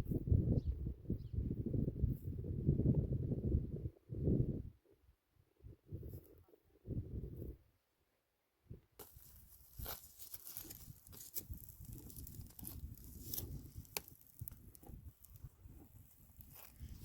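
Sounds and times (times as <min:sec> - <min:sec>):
dry vegetation crackling underfoot: 0:09.0 - 0:17.0.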